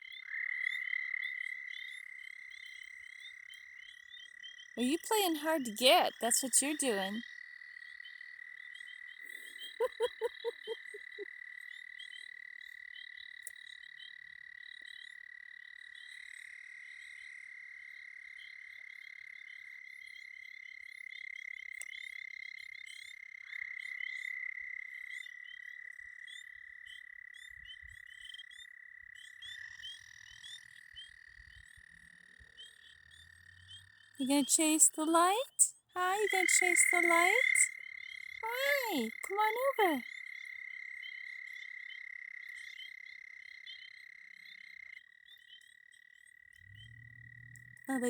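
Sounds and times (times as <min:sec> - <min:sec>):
frogs trilling: 0:00.0 - 0:48.0
high frog peeps: 0:04.8 - 0:07.2, 0:09.3 - 0:11.2, 0:34.2 - 0:37.7, 0:38.4 - 0:40.0
frog croaking low: 0:09.3 - 0:11.2, 0:34.7 - 0:42.5.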